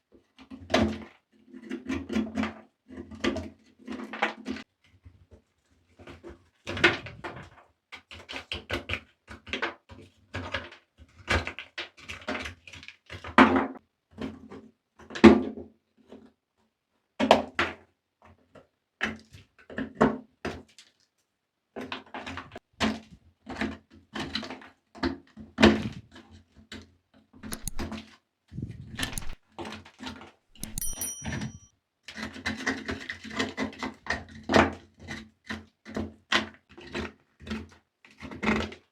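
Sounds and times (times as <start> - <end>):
toy and tools clicking on surface: 27.4 - 27.9, 28.9 - 29.4, 30.6 - 31.7
high ringing ping: 30.6 - 31.7.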